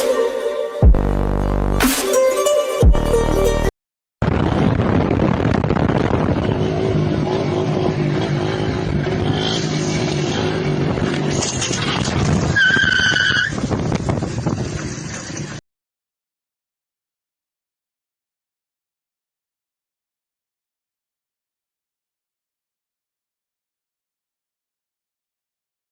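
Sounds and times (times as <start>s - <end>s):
road noise: 4.2s - 15.6s.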